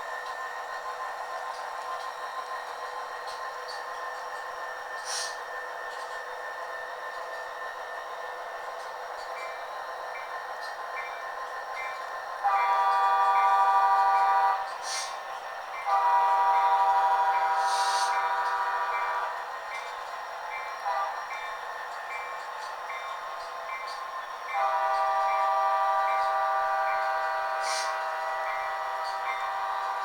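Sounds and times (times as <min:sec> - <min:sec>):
locomotive horn blasts: 0:12.4 - 0:14.6, 0:15.9 - 0:19.3, 0:20.9 - 0:21.2, 0:24.6 - 0:30.0.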